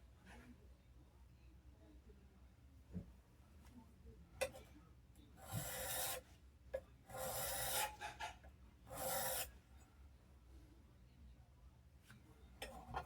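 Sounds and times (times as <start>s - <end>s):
blade scraping on sharpening stone: 5.4s - 6.2s, 7.1s - 9.5s.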